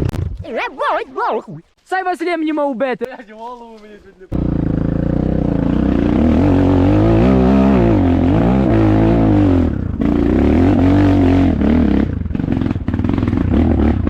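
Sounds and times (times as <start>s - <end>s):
motorcycle engine revving: 4.4s - 14.0s.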